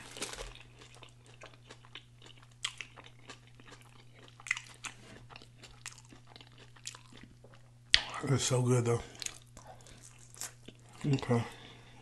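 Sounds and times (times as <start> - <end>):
faint low hum: 0.0 - 12.0
wet chewing smacks and clicks: 0.5 - 8.1, 9.1 - 11.2.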